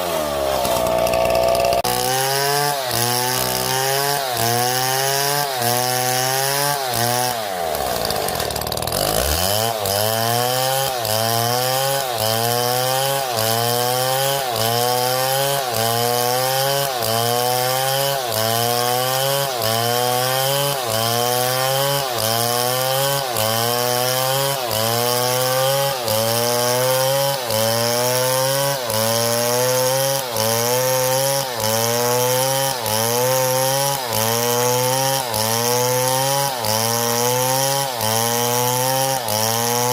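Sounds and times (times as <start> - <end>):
wood-cutting machinery running: 0.0 - 39.9.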